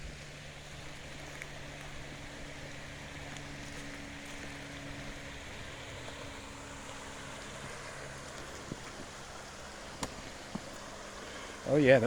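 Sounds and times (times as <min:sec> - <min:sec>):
stream running over stones: 0:00.0 - 0:12.0.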